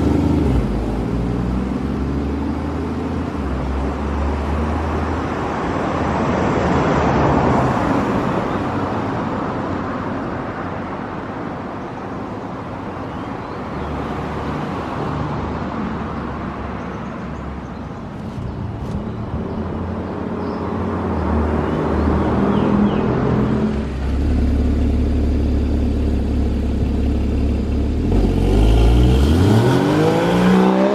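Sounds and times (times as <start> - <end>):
road noise: 0.0 - 30.9
car engine and exhaust running: 22.8 - 29.6.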